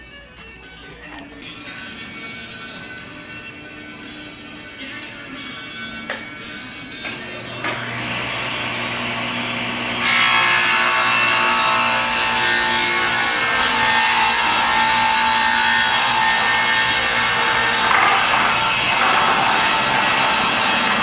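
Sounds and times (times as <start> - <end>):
power saw cutting wood: 7.5 - 21.0.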